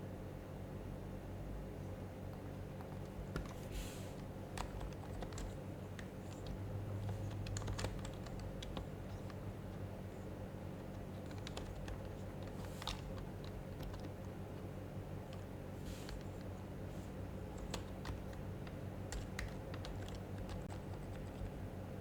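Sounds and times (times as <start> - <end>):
steady low hum: 0.0 - 22.0
soft keyboard key clicks: 10.9 - 14.2.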